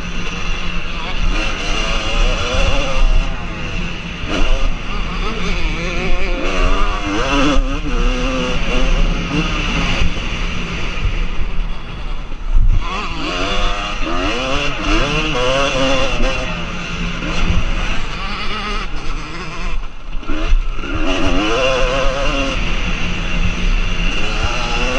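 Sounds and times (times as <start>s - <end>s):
motocross bike engines revving: 0.0s - 24.9s.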